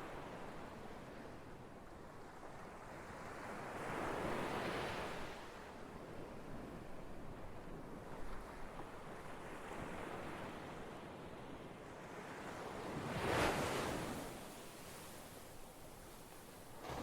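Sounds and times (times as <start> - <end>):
ocean waves breaking: 16.8 - 17.0.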